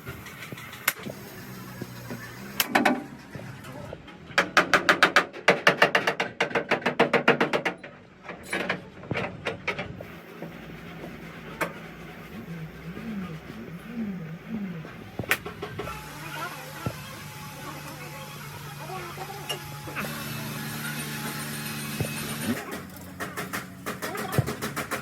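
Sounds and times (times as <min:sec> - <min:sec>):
rapid hammering: 0:04.4 - 0:07.8, 0:19.6 - 0:25.0
steady low hum: 0:09.9 - 0:24.6.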